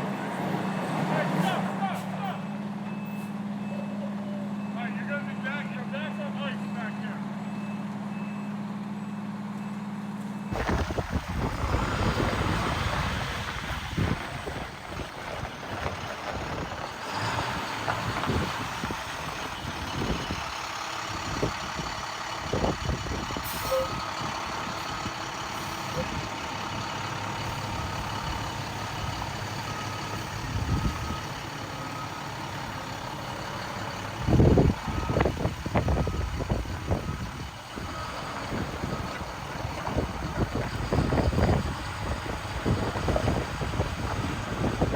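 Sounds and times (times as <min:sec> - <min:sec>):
heavy truck running: 0:00.0 - 0:44.9
wind buffeting microphone: 0:10.5 - 0:26.7, 0:30.3 - 0:31.4, 0:34.2 - 0:44.9
reversing alarm beeping: 0:23.5 - 0:24.8, 0:27.4 - 0:32.7, 0:34.2 - 0:39.2.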